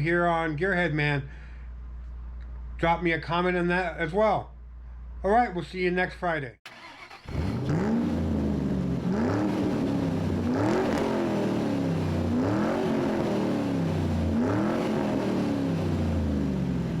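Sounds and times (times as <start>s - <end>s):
car engine revving: 6.7s - 17.0s.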